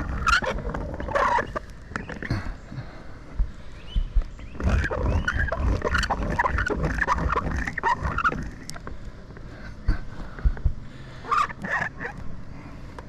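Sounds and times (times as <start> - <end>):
hand tool squeaking: 0.0 - 2.3, 4.6 - 8.8, 11.3 - 12.2.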